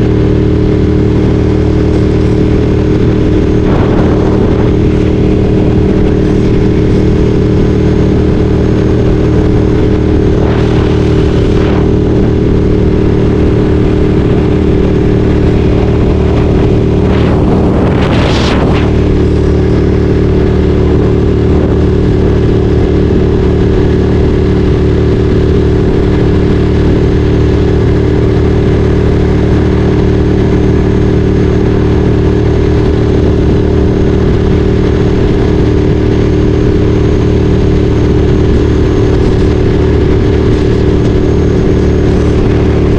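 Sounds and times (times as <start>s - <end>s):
motorcycle engine running steadily: 0.0s - 42.9s
rushing whoosh: 0.8s - 23.2s, 38.4s - 42.9s.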